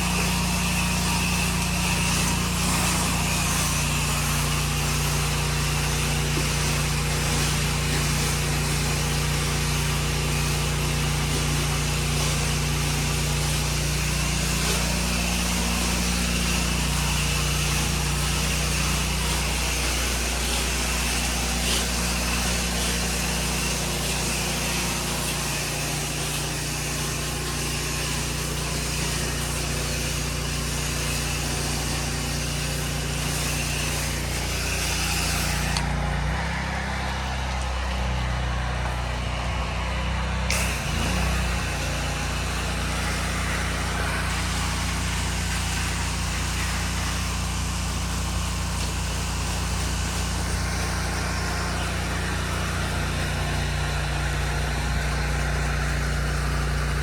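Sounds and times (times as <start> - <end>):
small gas engine running: 0.0 - 57.0
water spraying from nozzle: 0.0 - 57.0.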